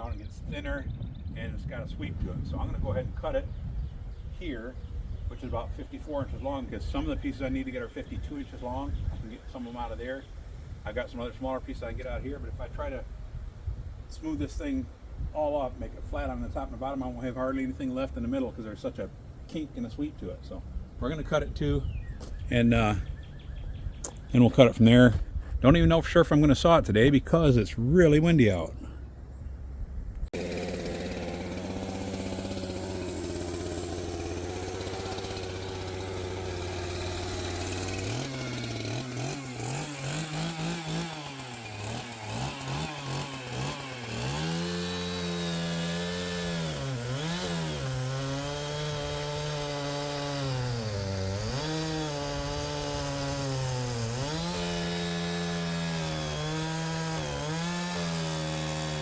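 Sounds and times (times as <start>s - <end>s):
chainsaw cutting a log: 30.3s - 59.0s.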